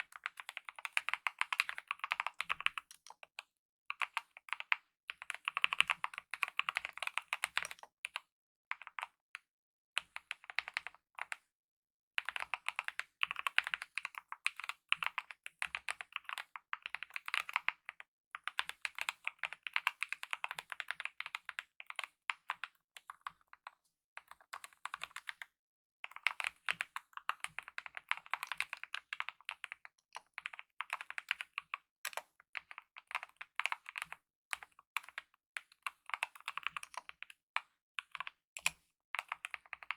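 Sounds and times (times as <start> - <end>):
mechanical keyboard typing: 0.1 - 3.2, 4.0 - 7.9, 26.1 - 37.3, 38.0 - 39.9.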